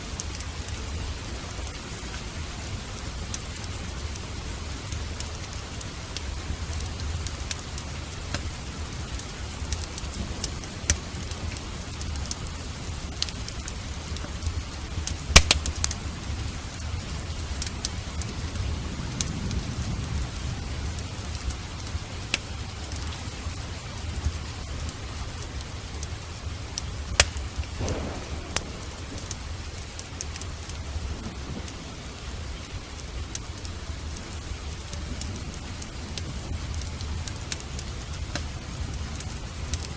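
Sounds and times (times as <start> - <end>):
steady rain: 0.0 - 39.9
wood fire crackling: 0.0 - 39.9
distant thunder rumble: 27.0 - 32.9.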